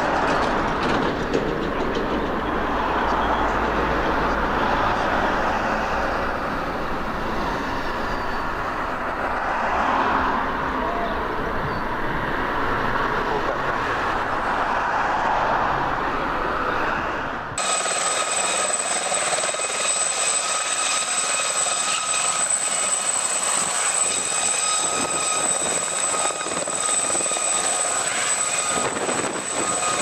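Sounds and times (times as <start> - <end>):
aircraft engine at high power: 17.6 - 30.0.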